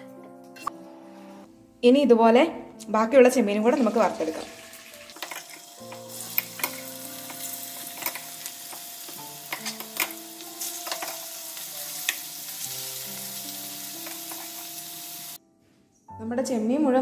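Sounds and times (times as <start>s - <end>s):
prawns sizzling in oil: 3.8s - 15.4s.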